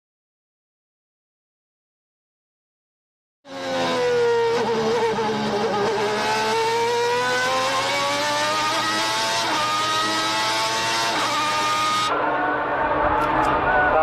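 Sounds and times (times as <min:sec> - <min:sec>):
racing car engine accelerating: 0:03.5 - 0:14.0.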